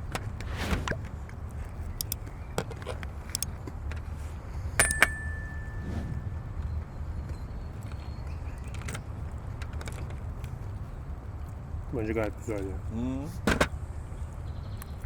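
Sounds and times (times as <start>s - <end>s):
ringing metallic strike: 4.8s - 6.8s
steady low rumble: 5.3s - 8.6s.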